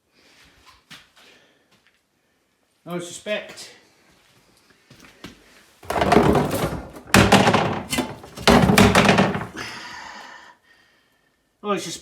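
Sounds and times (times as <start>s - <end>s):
heavy thunks: 5.8s - 9.8s.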